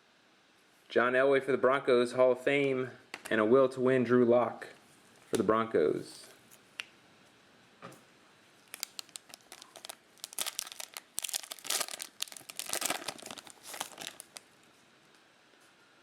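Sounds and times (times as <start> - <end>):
card pack wrapper crinkling: 8.6 - 14.5.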